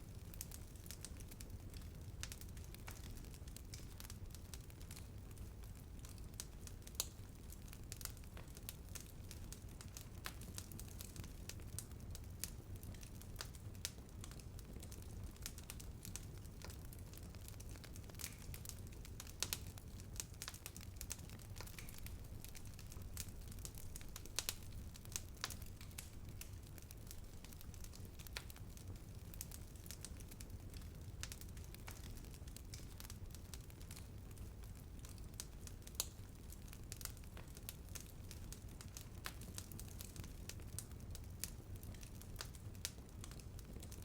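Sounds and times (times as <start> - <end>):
fire crackling and popping: 0.0 - 44.0
low rumble of fire: 0.0 - 44.0.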